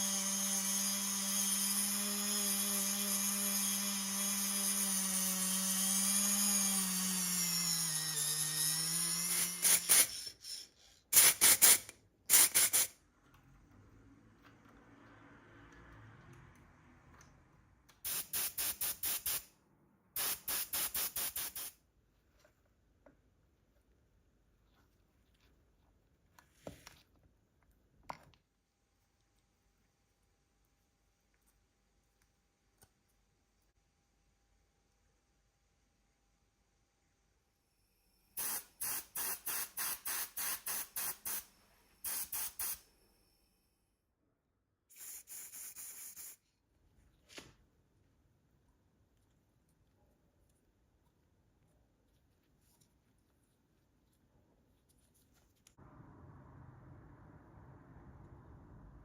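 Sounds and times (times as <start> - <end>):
short bursts of hissing spray: 9.6 - 13.0, 18.0 - 19.5, 20.2 - 21.8, 38.4 - 42.9, 44.9 - 46.4
spray bottle hissing squirts: 44.9 - 46.4.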